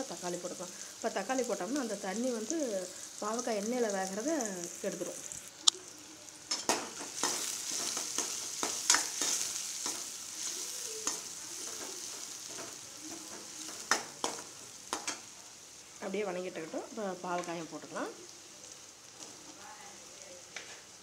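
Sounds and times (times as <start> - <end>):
onion sizzling in hot oil: 0.0 - 21.0
steel spoon scraping a pan: 6.5 - 14.4.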